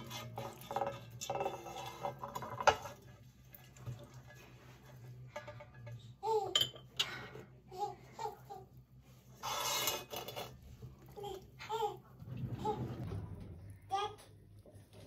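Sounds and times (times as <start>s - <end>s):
dishes and cutlery clinking: 0.0s - 7.4s, 9.4s - 11.1s.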